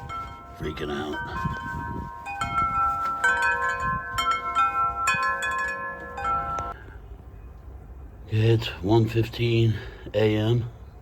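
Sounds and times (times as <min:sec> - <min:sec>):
wind chimes ringing: 0:00.0 - 0:06.8.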